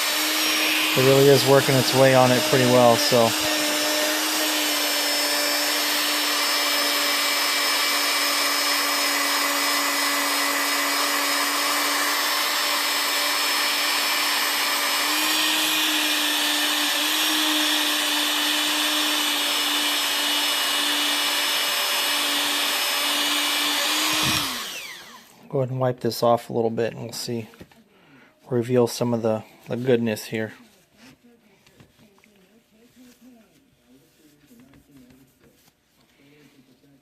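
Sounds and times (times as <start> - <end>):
rotary tool whining: 0.0 - 25.3
rotary tool winding down: 0.0 - 25.3.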